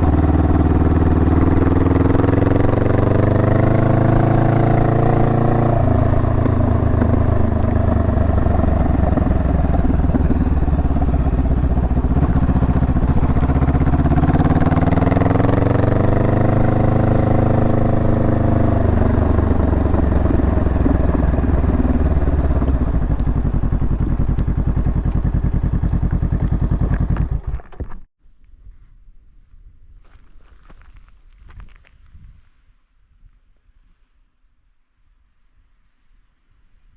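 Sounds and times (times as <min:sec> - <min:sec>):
motorcycle engine accelerating: 0:00.0 - 0:28.1.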